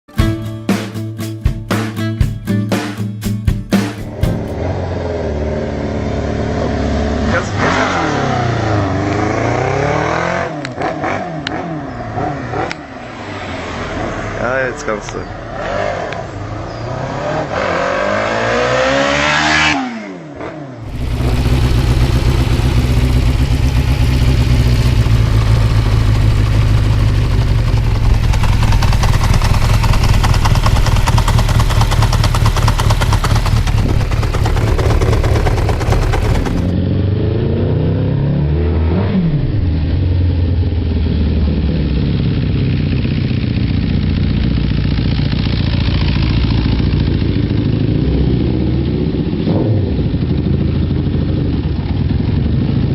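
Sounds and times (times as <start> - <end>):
motorcycle engine revving: 4.0 - 52.9.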